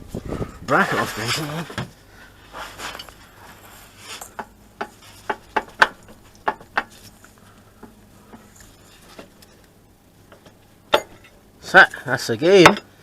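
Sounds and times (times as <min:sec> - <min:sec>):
soft rustling: 0:00.0 - 0:09.7
metal tools knocking and clinking: 0:10.3 - 0:11.4, 0:12.6 - 0:12.9.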